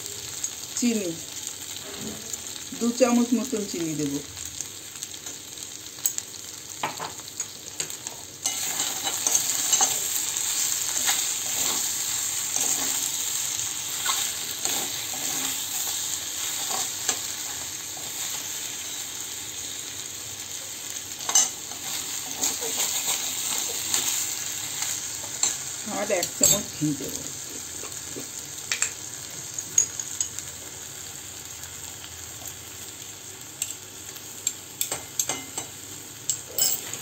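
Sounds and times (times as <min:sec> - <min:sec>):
food sizzling in a wok: 0:00.0 - 0:37.0
metal spatula scraping a pan: 0:08.4 - 0:13.3, 0:13.9 - 0:18.4, 0:21.3 - 0:24.2.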